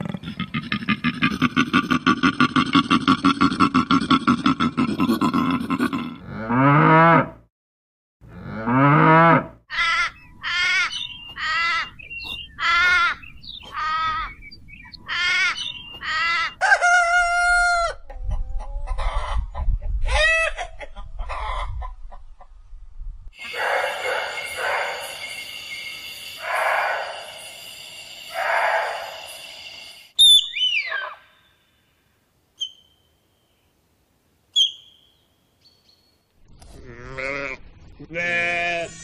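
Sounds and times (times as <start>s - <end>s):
chickens clucking: 14.9s - 22.6s
rooster crowing: 16.5s - 18.0s.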